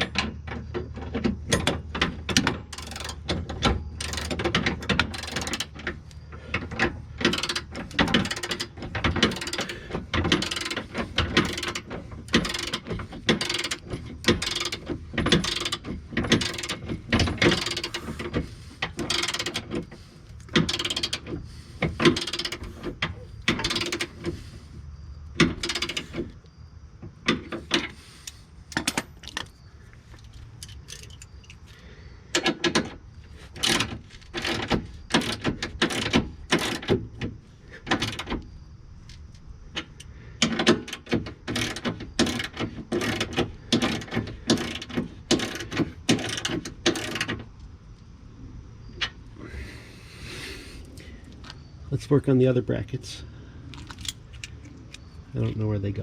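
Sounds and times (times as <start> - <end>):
ratchet wrench on a bolt: 1.5 - 24.4, 25.4 - 26.3, 32.3 - 37.2, 39.8 - 47.4.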